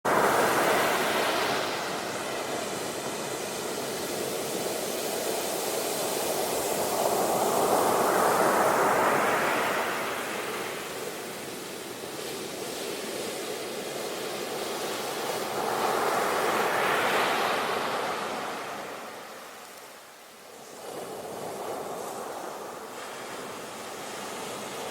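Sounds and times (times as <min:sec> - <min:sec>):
ocean waves breaking on shore: 0:00.1 - 0:24.9.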